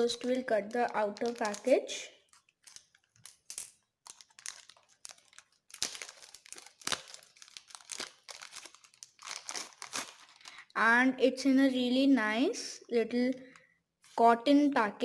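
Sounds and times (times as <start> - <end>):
packaging crackling and rustling: 0.0 - 10.7.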